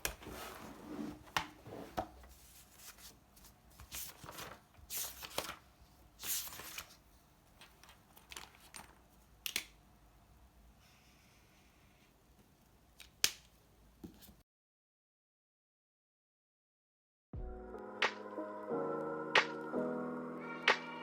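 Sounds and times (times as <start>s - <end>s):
rustling of things handled: 0.0s - 9.2s.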